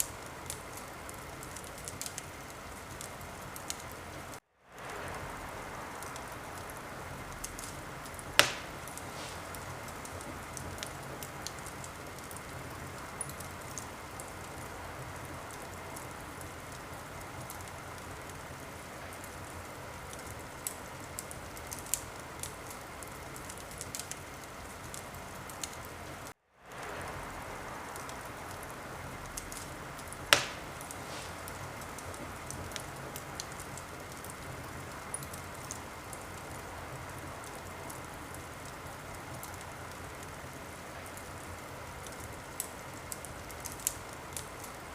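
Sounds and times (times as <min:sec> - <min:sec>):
sharp fire pops: 0:00.0 - 0:16.5, 0:26.7 - 0:36.4
wood fire crackling: 0:00.0 - 0:44.9.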